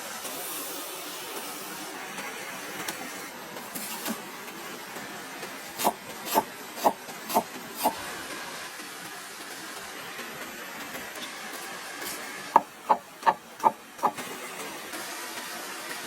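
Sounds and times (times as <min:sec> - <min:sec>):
short sharp knocks: 0:12.6 - 0:14.2.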